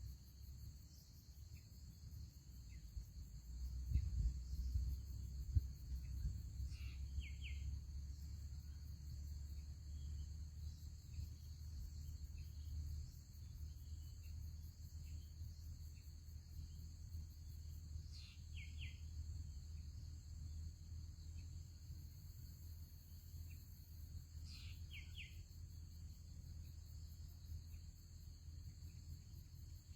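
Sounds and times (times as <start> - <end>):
bird chirps: 6.0 - 7.8, 18.0 - 19.1, 24.4 - 25.4.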